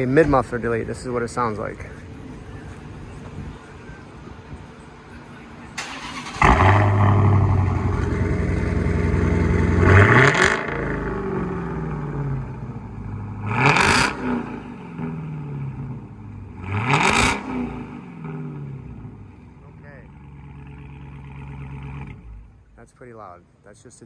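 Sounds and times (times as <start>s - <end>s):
engine idling: 0.0s - 13.4s, 18.7s - 22.9s
car engine starting: 0.0s - 22.8s
engine revving: 5.8s - 19.4s.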